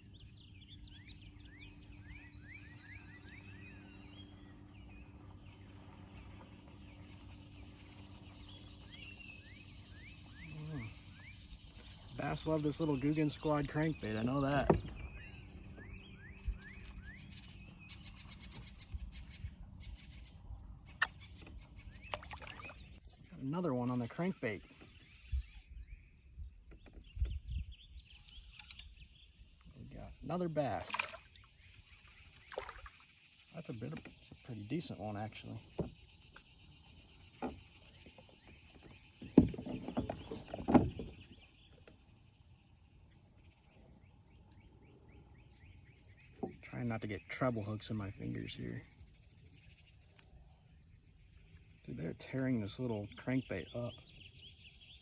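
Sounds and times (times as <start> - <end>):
insects buzzing: 0.0 - 55.0
knocks and thumps in kayak: 13.2 - 15.3, 35.6 - 42.0.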